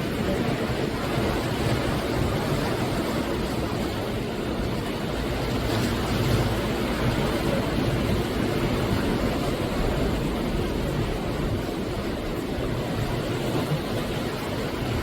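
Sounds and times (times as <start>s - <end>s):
ocean waves breaking on shore: 0.0s - 15.0s
wind buffeting microphone: 0.0s - 15.0s.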